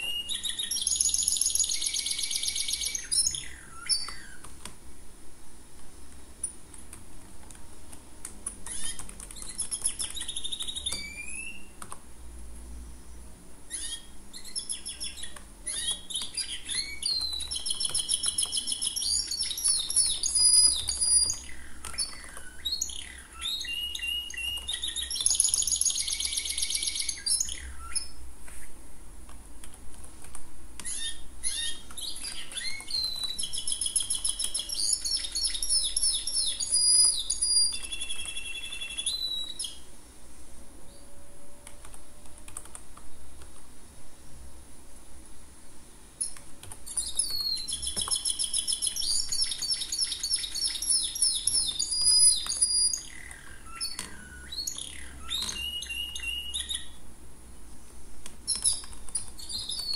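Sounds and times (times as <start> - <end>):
songbird chirping and trilling: 0.0 - 4.5, 8.6 - 11.8, 13.0 - 28.7, 30.8 - 39.9, 46.2 - 57.0, 58.5 - 59.9
computer keyboard typing: 6.1 - 11.2, 11.8 - 12.0, 15.0 - 22.6, 24.4 - 26.8, 29.3 - 31.0, 31.8 - 39.6, 41.6 - 43.7, 46.2 - 54.8, 58.2 - 59.9.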